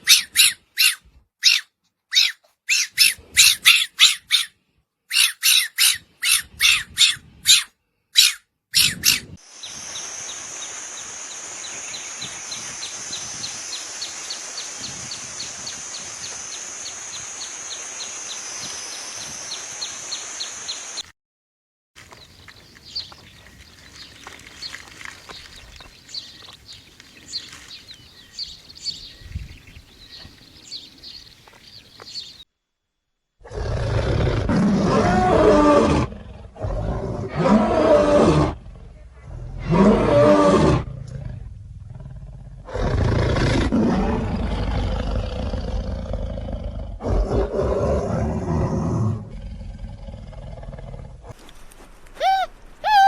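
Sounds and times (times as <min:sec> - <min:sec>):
large wild cat roaring: 0:33.4 - 0:51.3.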